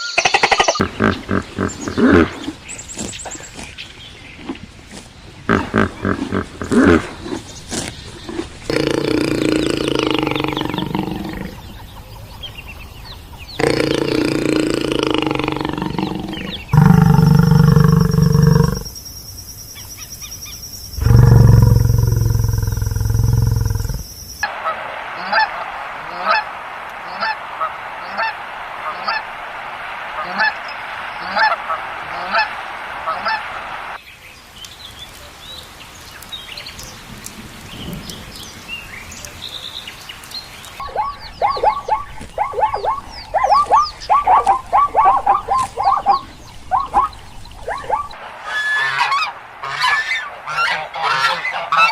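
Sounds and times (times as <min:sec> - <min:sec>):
geese honking: 0:24.4 - 0:34.0, 0:47.7 - 0:51.9.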